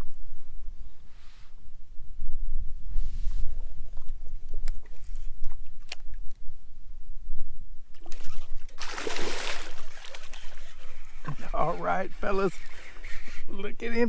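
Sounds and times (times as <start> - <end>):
water splashing: 8.0 - 13.6.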